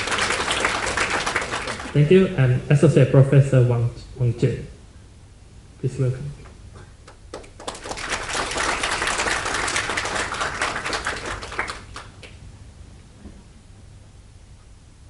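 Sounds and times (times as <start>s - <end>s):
audience clapping: 0.0s - 2.2s, 7.0s - 12.4s.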